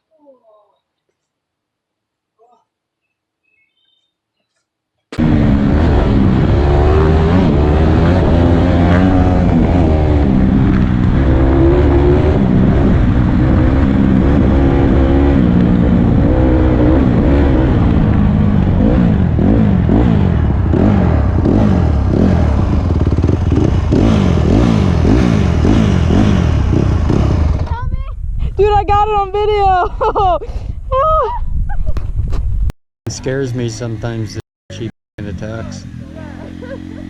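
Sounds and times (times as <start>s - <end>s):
dirt bike engine revving: 5.2s - 27.8s, 33.6s - 37.0s.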